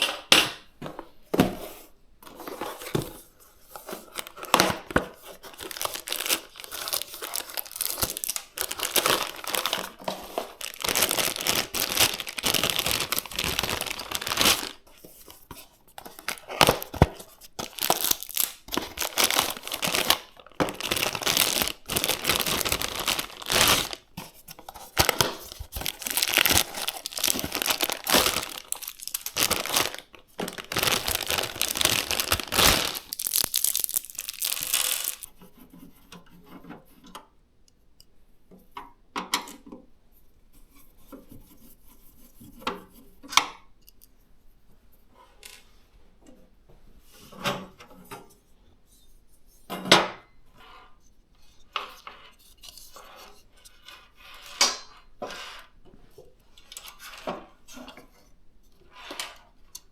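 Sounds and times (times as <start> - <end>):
plastic packaging crinkling and tearing: 3.8 - 14.9, 16.0 - 35.3.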